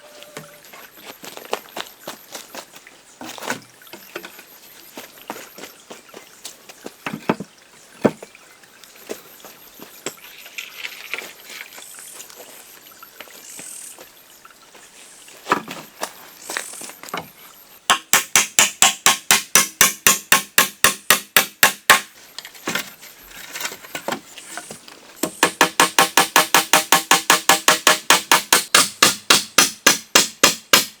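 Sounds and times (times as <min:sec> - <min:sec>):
knocks and taps: 0:25.2 - 0:30.6.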